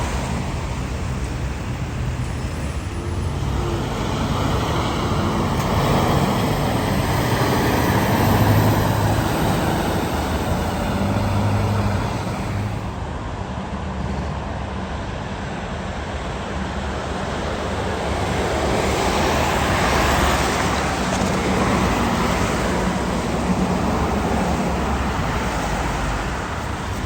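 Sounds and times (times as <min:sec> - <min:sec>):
large engine drone: 0:00.0 - 0:27.0
tyre and road noise: 0:00.0 - 0:27.0
vehicle passing: 0:03.1 - 0:13.0.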